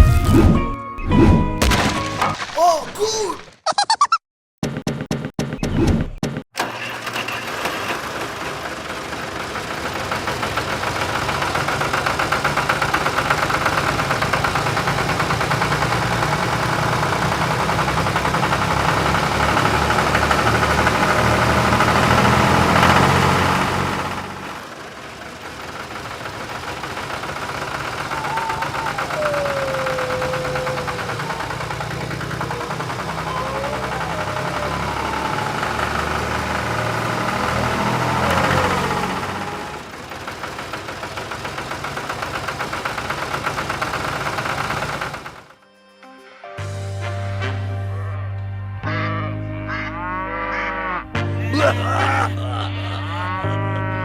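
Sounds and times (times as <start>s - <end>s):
engine chugging steadily: 6.6s - 45.6s.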